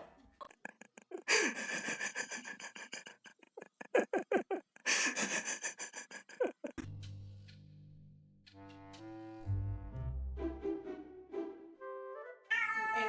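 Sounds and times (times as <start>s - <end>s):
music: 6.8s - 13.0s.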